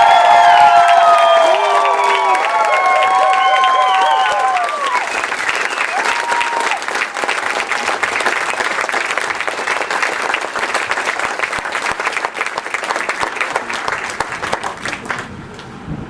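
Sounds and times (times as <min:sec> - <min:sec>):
crowd applauding: 0:00.0 - 0:15.6.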